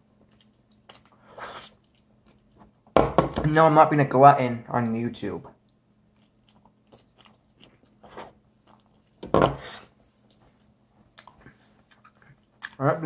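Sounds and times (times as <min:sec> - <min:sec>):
person chewing crunchy food: 0:00.0 - 0:02.9, 0:05.6 - 0:13.0.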